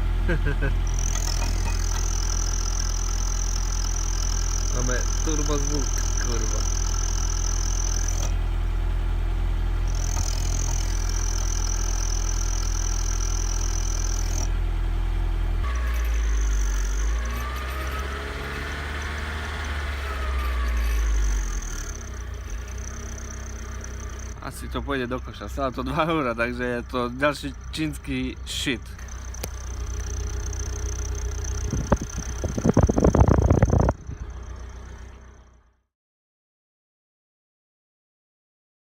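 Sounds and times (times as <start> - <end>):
car engine idling: 0.0 - 35.8
high exhaust whistle: 15.6 - 24.4, 29.0 - 35.4.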